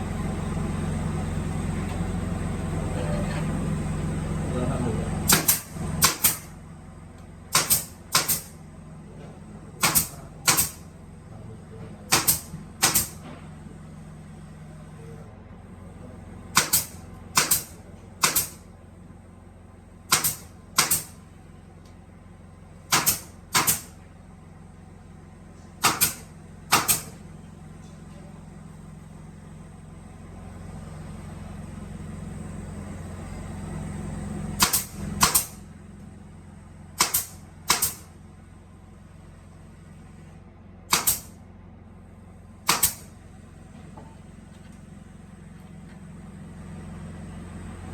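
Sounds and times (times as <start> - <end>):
workshop machinery humming: 0.0 - 47.9.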